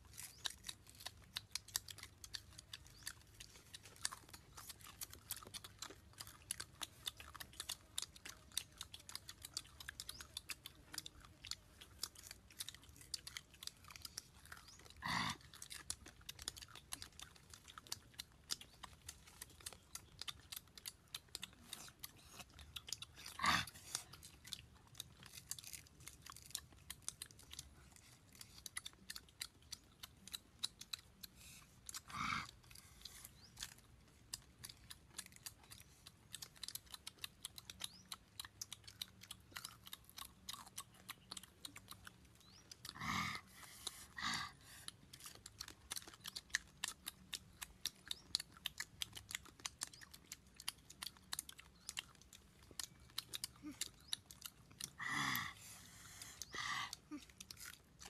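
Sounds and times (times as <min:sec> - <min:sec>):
chewing and crunching: 0:00.0 - 0:58.0.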